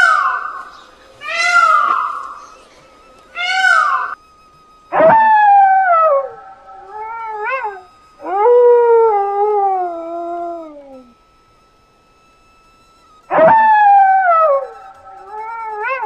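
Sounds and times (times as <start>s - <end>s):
dog howling: 0.0s - 2.6s, 3.4s - 4.2s, 4.9s - 11.2s, 13.3s - 16.0s.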